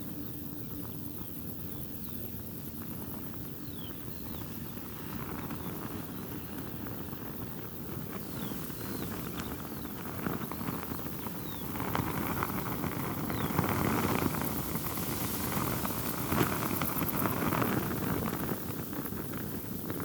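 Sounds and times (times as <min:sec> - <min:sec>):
fabric flapping in wind: 0:02.7 - 0:20.0
wind rushing: 0:08.1 - 0:18.6.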